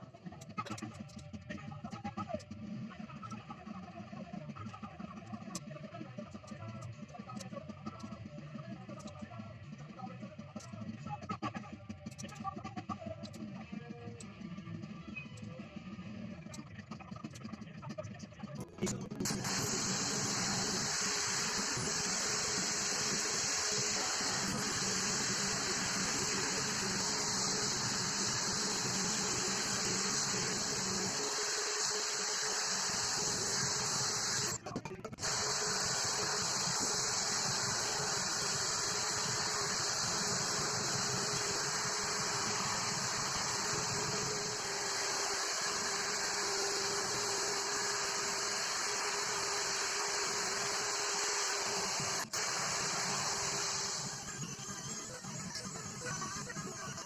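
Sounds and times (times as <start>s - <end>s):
faint steady hum: 19.3s - 34.6s
steady hiss: 19.4s - 34.6s, 35.2s - 54.1s.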